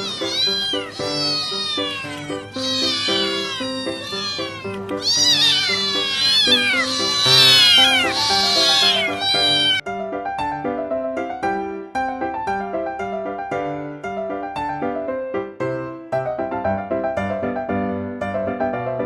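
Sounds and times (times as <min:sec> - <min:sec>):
cats meowing loudly: 0:00.0 - 0:09.8
piano music: 0:00.0 - 0:19.0.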